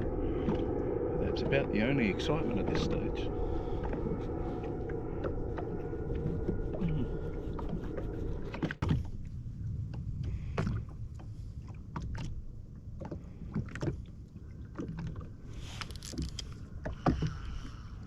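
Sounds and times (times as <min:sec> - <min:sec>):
low wind rumble: 0:00.0 - 0:18.0
water lapping against hull: 0:00.0 - 0:18.0.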